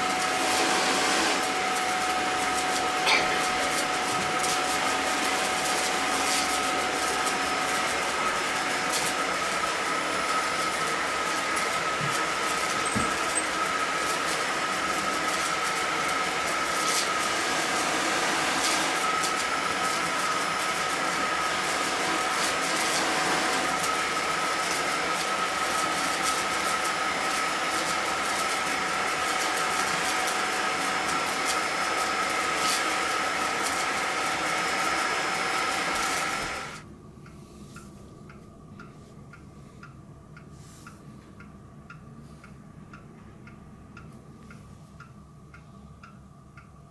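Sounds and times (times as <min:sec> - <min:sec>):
vacuum cleaner running: 0:00.0 - 0:36.9.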